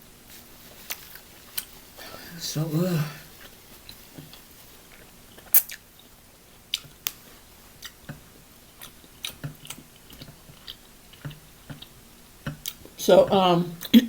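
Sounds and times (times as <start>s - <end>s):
wet chewing smacks: 6.7s - 7.2s, 7.8s - 13.0s.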